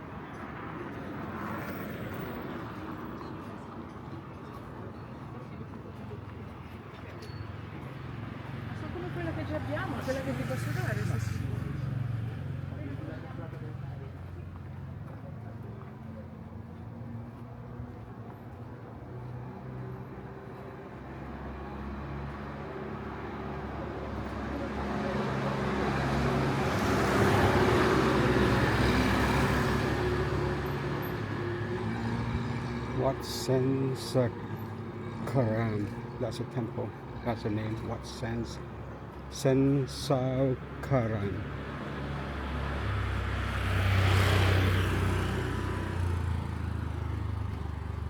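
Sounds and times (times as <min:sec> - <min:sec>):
vehicle passing by: 0:08.1 - 0:14.1, 0:21.4 - 0:36.2, 0:41.2 - 0:48.0
vehicle engine passing by: 0:41.5 - 0:48.0.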